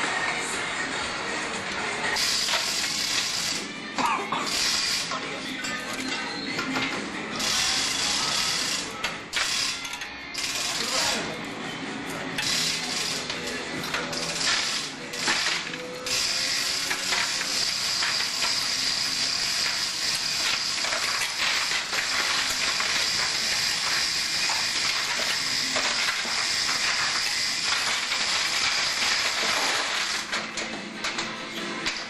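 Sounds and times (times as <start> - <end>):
ratchet clicking rapidly: 2.2 - 3.6, 4.5 - 5.2, 7.4 - 11.2, 12.4 - 30.4.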